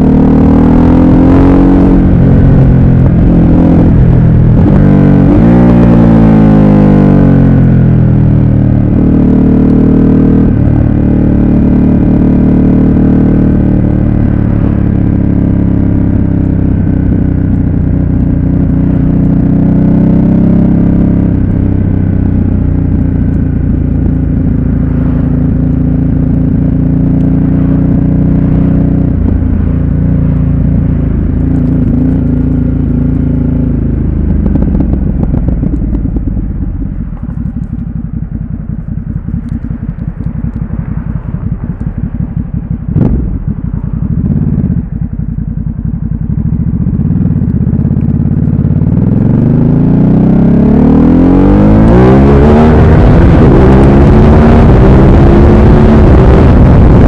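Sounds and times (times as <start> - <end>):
motorcycle engine revving: 0.0 - 57.0
wind buffeting microphone: 34.2 - 44.9.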